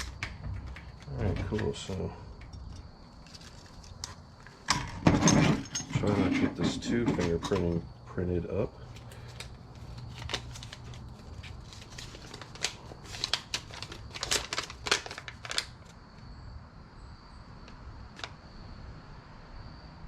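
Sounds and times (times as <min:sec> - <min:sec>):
plastic packaging crinkling: 0:03.1 - 0:04.6, 0:08.9 - 0:16.0.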